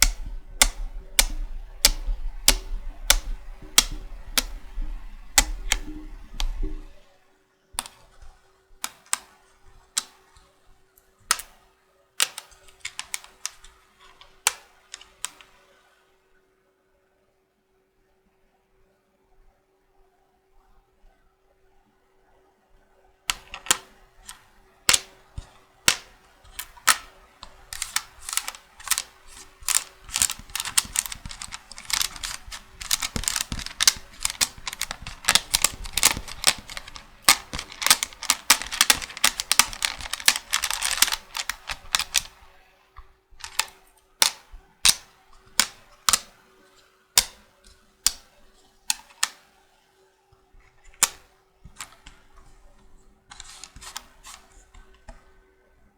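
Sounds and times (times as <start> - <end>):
checkers pieces clicking: 0.0 - 6.9, 7.8 - 8.0, 8.8 - 9.3, 11.3 - 11.6, 12.2 - 15.6, 23.3 - 42.4, 43.4 - 46.3, 47.2 - 47.4, 48.1 - 48.3, 48.9 - 49.4, 51.0 - 52.1, 53.3 - 54.4.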